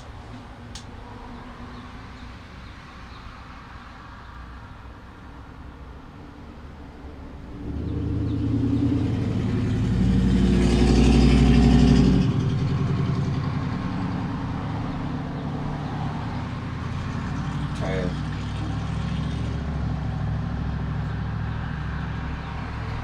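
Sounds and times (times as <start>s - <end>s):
vehicle engine running: 7.6s - 23.0s.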